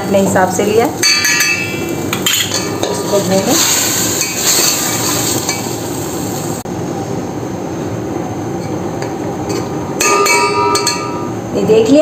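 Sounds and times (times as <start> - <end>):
spoon clinking on a pot: 1.0 - 3.1, 10.0 - 11.3
chicken sizzling in oil: 1.6 - 6.6.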